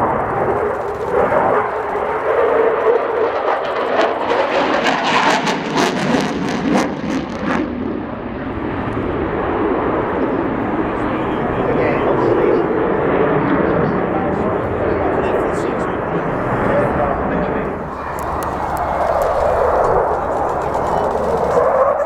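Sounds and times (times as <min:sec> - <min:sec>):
sharp crackles: 0:00.0 - 0:03.2, 0:17.7 - 0:22.0
loud jet engine noise: 0:00.0 - 0:05.5, 0:17.6 - 0:22.0.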